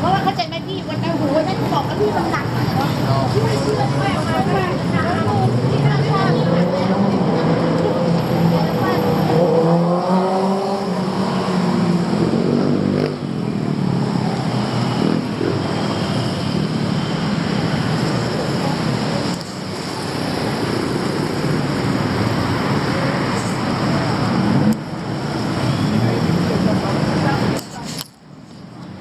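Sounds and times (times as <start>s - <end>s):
motorcycles passing: 0.0s - 27.9s
cars passing: 0.0s - 29.0s
engine note rising and falling: 5.2s - 18.0s.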